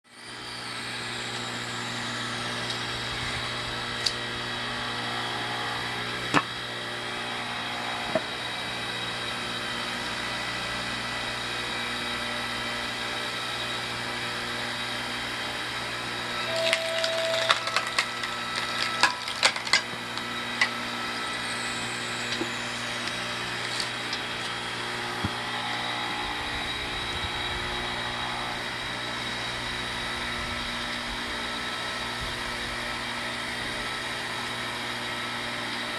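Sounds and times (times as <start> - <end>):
log splitter humming: 0.2 - 35.9
wood cracking and splintering: 16.6 - 20.1.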